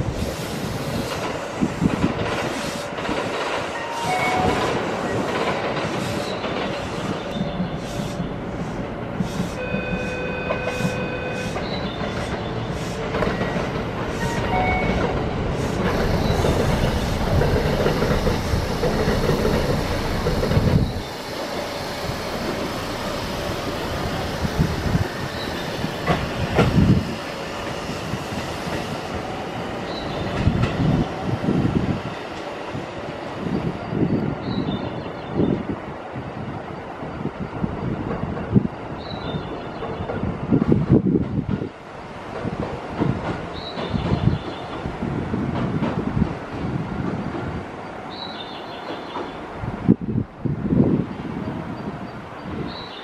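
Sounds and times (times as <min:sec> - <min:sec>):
electric train running past: 0:00.0 - 0:53.0
wheels knocking on rail joints: 0:10.5 - 0:22.7.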